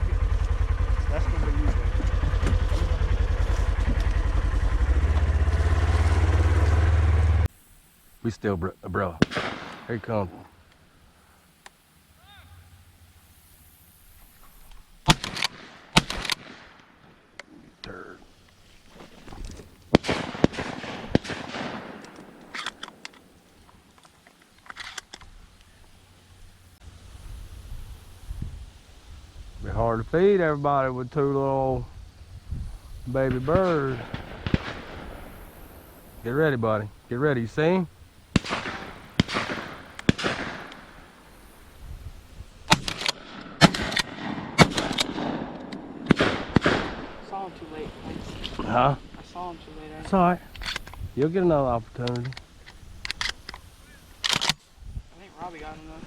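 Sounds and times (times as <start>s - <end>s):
shotgun shots: 9.2s - 10.3s, 15.0s - 17.1s, 19.9s - 23.2s, 33.2s - 36.8s, 37.6s - 41.7s, 42.7s - 47.2s.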